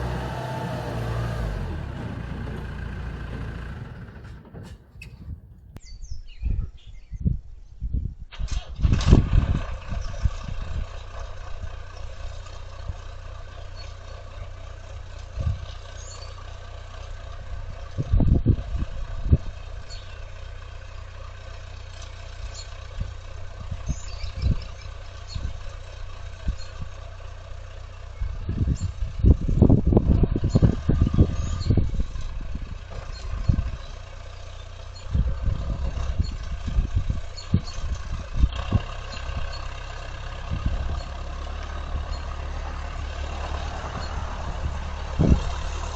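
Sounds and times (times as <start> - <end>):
engine running steadily: 0.0 - 5.8, 9.5 - 45.9
low thumps and clunks: 0.0 - 5.8.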